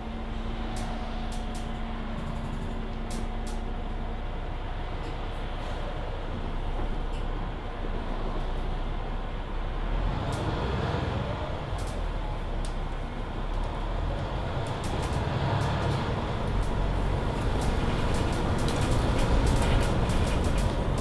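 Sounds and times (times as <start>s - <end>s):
bus engine rumble: 0.0s - 21.0s
road noise: 10.0s - 21.0s
small rattles: 15.8s - 21.0s.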